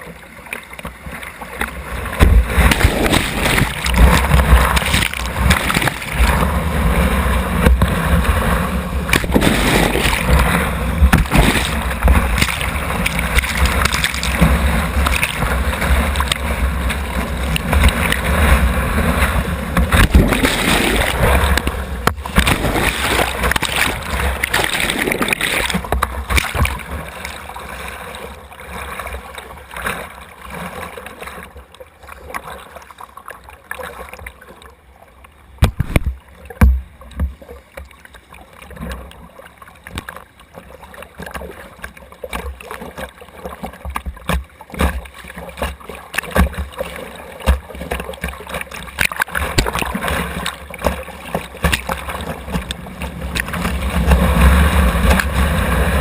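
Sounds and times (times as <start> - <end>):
river water rushing: 1.1 - 29.2
sharp water splashes: 1.6 - 28.2, 42.2 - 56.0
thumps against boat hull: 2.2 - 5.6, 35.6 - 37.4.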